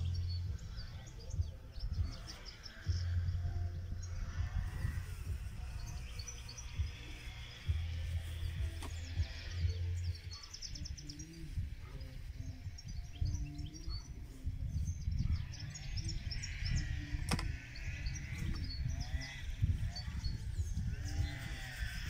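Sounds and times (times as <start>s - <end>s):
songbirds chirping: 0.0s - 22.0s
wind rumble on microphone: 0.0s - 22.0s
sharp click: 17.2s - 17.6s.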